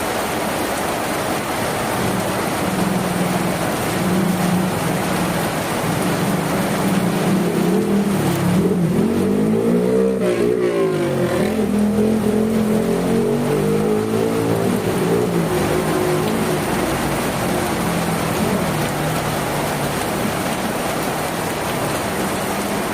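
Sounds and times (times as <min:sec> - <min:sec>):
steady rain: 0:00.0 - 0:22.9
vehicle engine passing by: 0:03.7 - 0:20.6.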